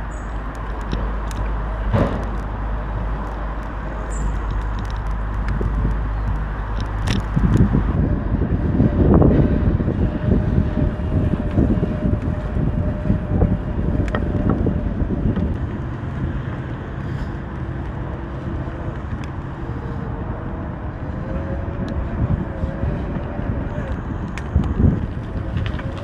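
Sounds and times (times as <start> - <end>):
rolling road noise: 0.0 - 26.0
wind buffeting microphone: 0.0 - 26.0.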